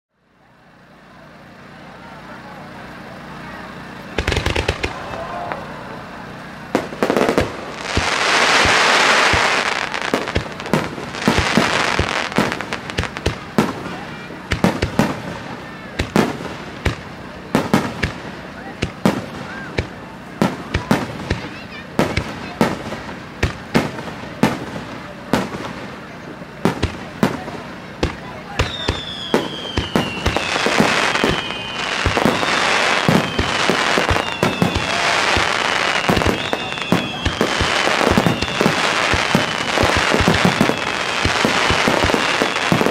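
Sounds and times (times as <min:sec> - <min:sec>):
loud firework hissing: 0:03.3 - 0:42.9
firework shells bursting: 0:04.2 - 0:05.6, 0:06.8 - 0:15.3, 0:28.0 - 0:42.9
high falling whistle: 0:28.7 - 0:35.1, 0:35.8 - 0:38.9.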